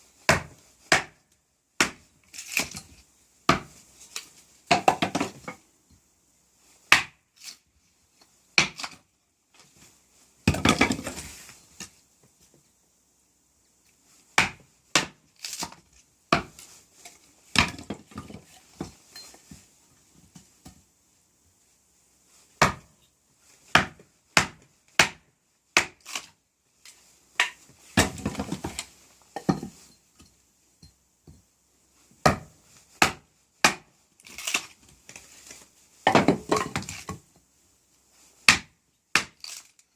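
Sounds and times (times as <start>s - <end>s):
wood cracking as it splits: 33.0s - 34.8s.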